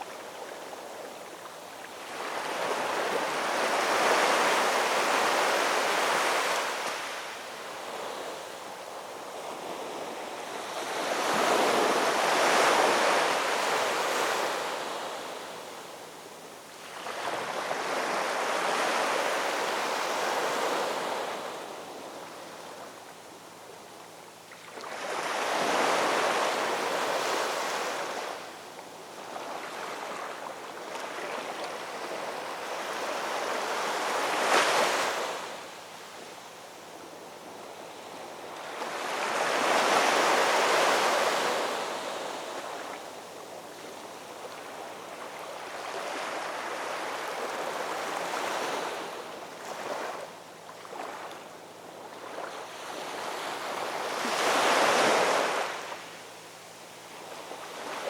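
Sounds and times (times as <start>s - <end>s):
waves breaking and washing in: 0.0s - 58.0s.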